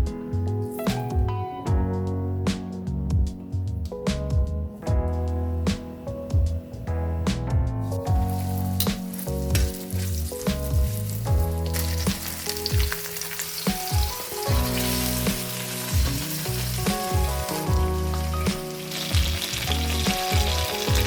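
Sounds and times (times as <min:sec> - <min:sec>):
background music with bass beat: 0:00.0 - 0:13.0, 0:13.7 - 0:21.0
food sizzling in a pan: 0:08.2 - 0:21.0.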